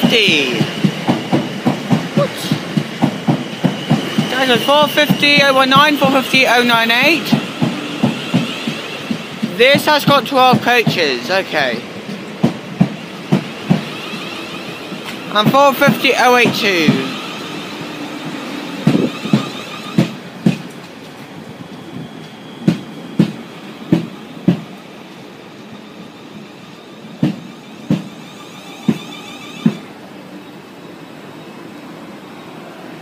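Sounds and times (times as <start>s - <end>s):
train wheels knocking over rail joints: 0.0s - 21.2s, 22.6s - 24.8s, 27.2s - 29.9s
train rumble: 0.0s - 33.0s.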